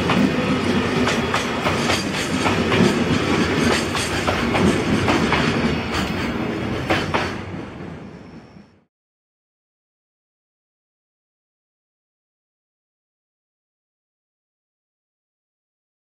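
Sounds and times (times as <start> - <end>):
wheels clacking over rail joints: 0.0 - 7.6
freight train rolling past: 0.0 - 8.9.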